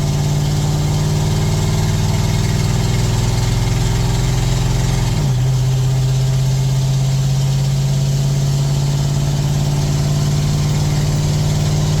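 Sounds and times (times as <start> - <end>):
loud diesel engine idling: 7.2 - 12.0.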